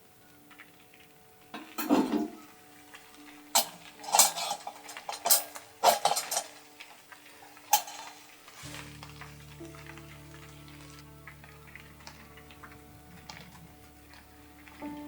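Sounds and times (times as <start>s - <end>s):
hard objects clinking: 1.6s - 8.9s.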